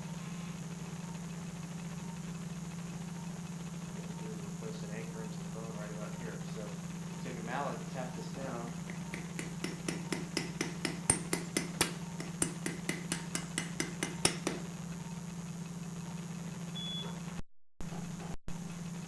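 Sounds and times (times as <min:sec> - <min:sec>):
mallet tapping: 0:08.8 - 0:14.7.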